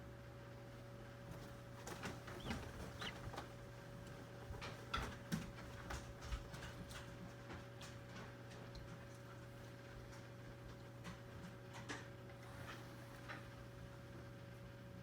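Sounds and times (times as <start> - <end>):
egg incubator humming: 0.0 - 15.0
poults peeping: 1.4 - 3.8.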